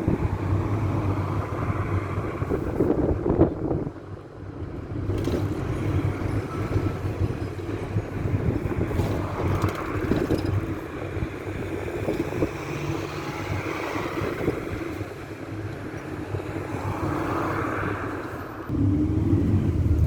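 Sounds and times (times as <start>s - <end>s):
engine and road rumble: 0.0s - 20.0s.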